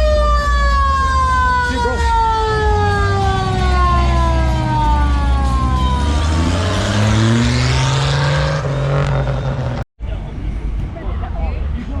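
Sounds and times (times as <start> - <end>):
siren winding down: 0.0 - 9.8
engine revving up: 2.9 - 9.8.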